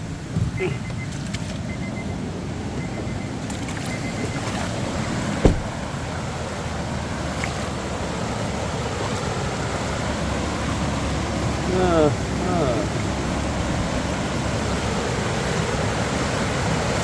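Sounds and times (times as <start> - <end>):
creek rushing: 0.0 - 17.0
wind: 0.0 - 17.0
car door-open chime beeping: 0.3 - 5.8
car door slamming: 5.0 - 5.9.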